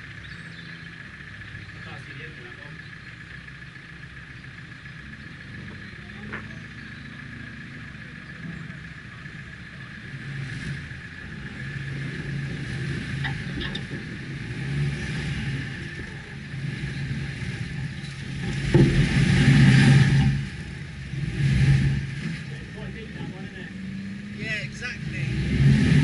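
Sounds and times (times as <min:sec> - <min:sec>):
car engine driving off-road: 0:00.0 - 0:26.0.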